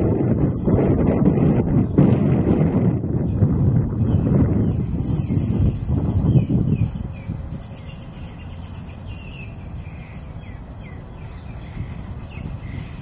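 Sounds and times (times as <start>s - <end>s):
wind rumble on microphone: 0.0s - 13.0s
birds chirping: 3.0s - 13.0s.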